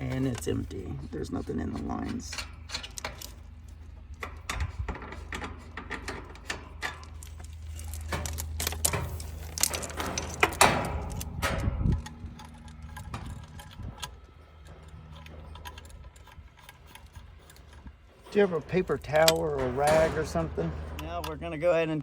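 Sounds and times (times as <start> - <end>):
low steady hum: 0.0 - 22.0
tools clicking and rattling: 0.0 - 22.0
loud clatter: 4.4 - 22.0.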